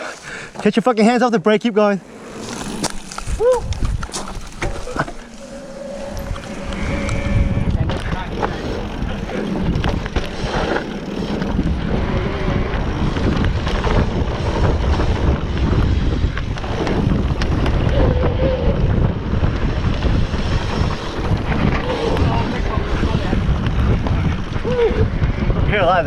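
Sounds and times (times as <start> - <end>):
low rumble: 2.0 - 25.6
wind rushing over microphone: 2.0 - 26.0
bike rattling and knocking: 6.2 - 26.0.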